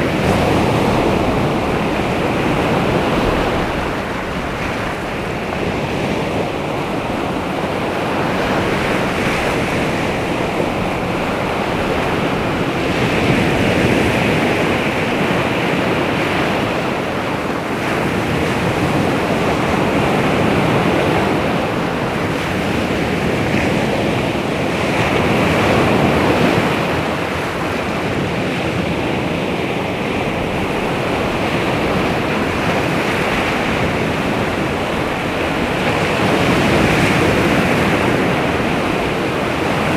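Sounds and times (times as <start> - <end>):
waves washing onto shore: 0.0 - 39.9
wind buffeting microphone: 0.0 - 39.9.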